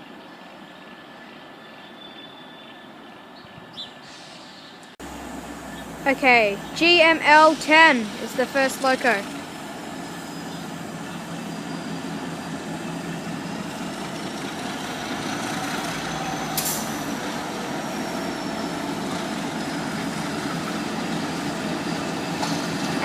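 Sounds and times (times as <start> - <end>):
freight train engine and rolling: 0.0 - 23.0
faint high whine: 5.0 - 8.7.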